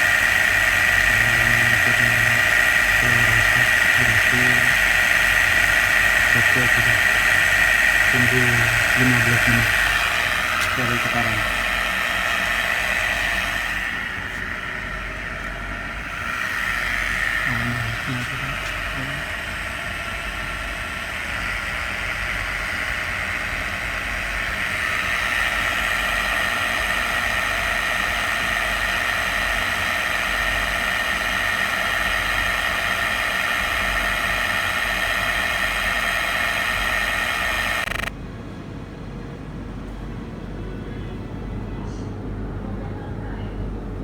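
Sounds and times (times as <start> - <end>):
electric motor humming with whine: 0.0 - 38.1.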